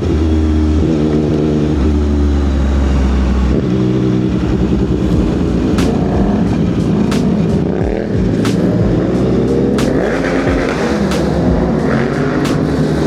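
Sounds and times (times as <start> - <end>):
motorcycle engine running: 0.0 - 13.0
sharp clicks: 9.8 - 10.2.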